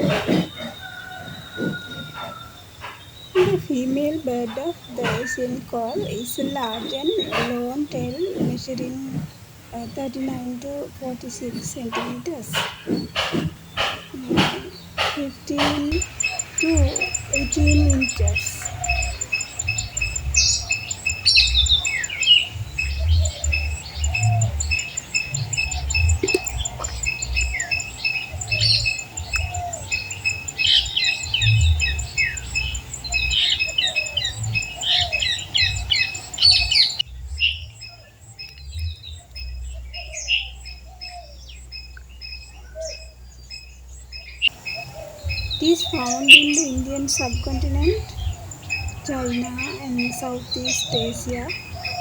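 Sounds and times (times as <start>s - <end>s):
birds squawking and chirping: 0.0s - 52.0s
fast high-pitched ticking: 15.0s - 33.7s.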